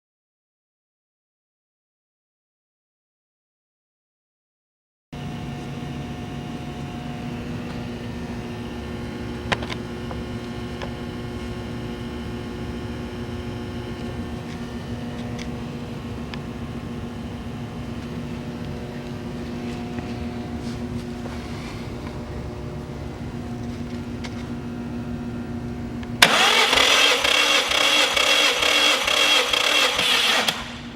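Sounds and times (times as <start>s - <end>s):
engine cranking on starter motor: 26.2s - 30.9s.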